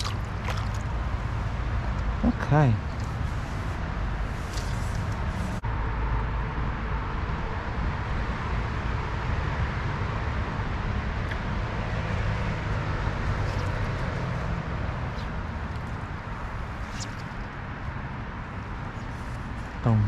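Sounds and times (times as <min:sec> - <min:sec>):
stream water rushing: 0:00.0 - 0:02.0, 0:12.6 - 0:18.2.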